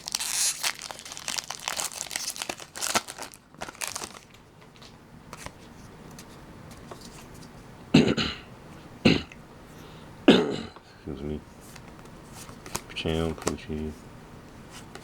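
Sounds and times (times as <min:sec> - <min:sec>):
foil wrapper crinkling: 0:00.0 - 0:05.5
faint rustles and clicks: 0:03.7 - 0:07.7.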